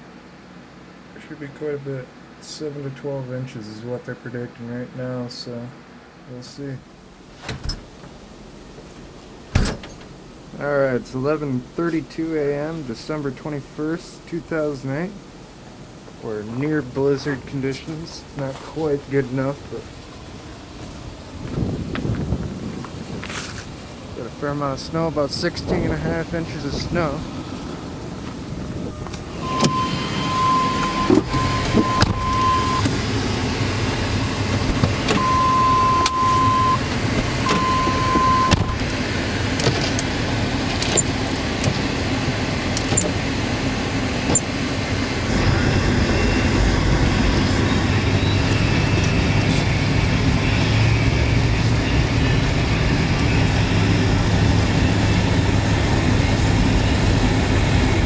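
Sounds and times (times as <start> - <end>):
wind: 0.0 - 58.0
car running: 6.8 - 58.0
long electronic beeps: 29.3 - 32.9, 35.1 - 38.8, 45.4 - 49.3
deep low hum: 45.0 - 58.0.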